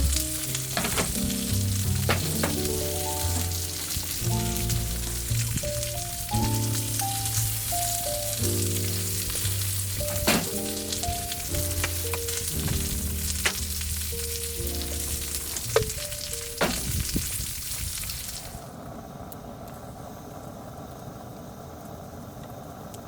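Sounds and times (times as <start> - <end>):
slow background music: 0.0 - 16.6
steak sizzling on griddle: 0.0 - 18.7.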